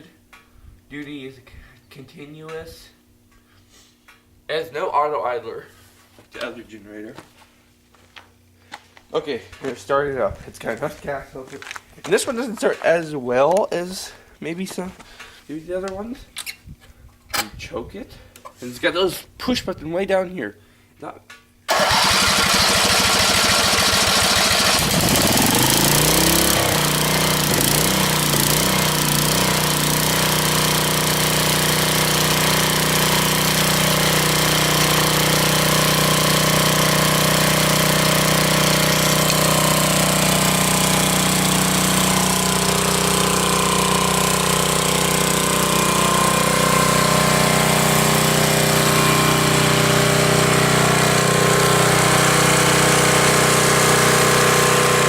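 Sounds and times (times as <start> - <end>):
portable generator engine running: 21.7 - 55.0.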